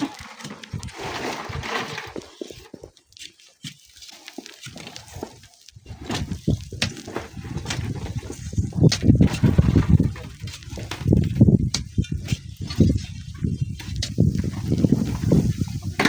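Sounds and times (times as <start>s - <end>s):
wind gusting across microphone: 5.8s - 16.0s.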